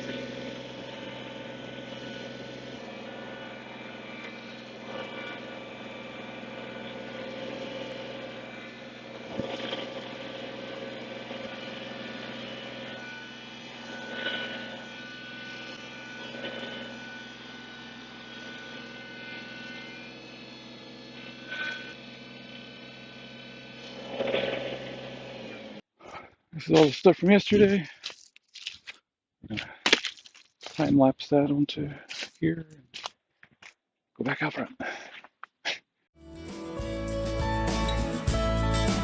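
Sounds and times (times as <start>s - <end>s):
engine idling: 0.0s - 25.7s, 36.3s - 39.0s.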